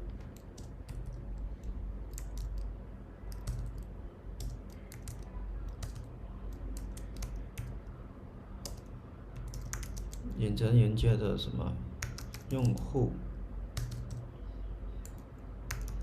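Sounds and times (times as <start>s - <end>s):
typing on computer keyboard: 0.1s - 2.7s, 3.3s - 7.8s, 8.6s - 10.3s, 12.0s - 12.9s, 13.7s - 14.3s, 15.0s - 16.0s.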